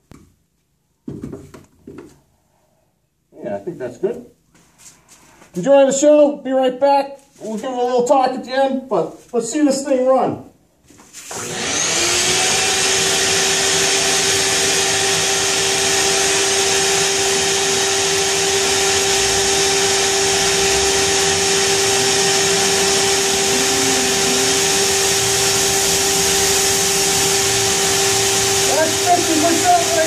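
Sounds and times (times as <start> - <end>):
belt grinder running: 11.3 - 30.0.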